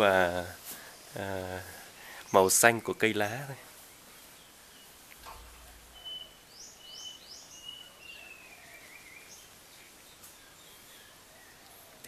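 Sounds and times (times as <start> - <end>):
songbird whistle and warble: 4.0 - 12.0
quick rising bird chirps: 4.2 - 9.6
low rumble: 5.2 - 6.4.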